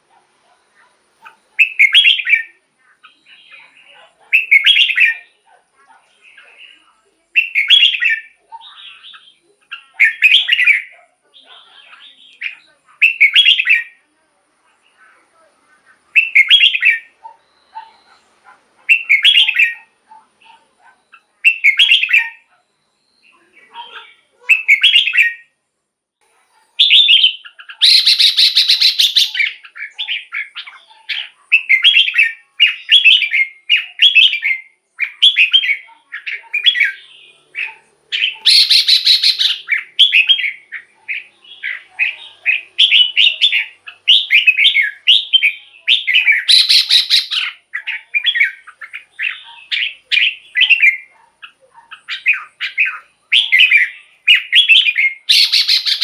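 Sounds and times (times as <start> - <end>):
bird singing whistled phrases: 1.6 - 3.8, 4.4 - 5.3, 7.4 - 10.9, 12.2 - 14.0, 16.2 - 18.2, 18.9 - 19.9, 21.0 - 23.4, 24.5 - 25.5, 26.8 - 30.6, 31.2 - 51.1, 52.0 - 56.0
noisy bird bursts: 26.8 - 30.6, 36.6 - 50.9, 52.1 - 56.0.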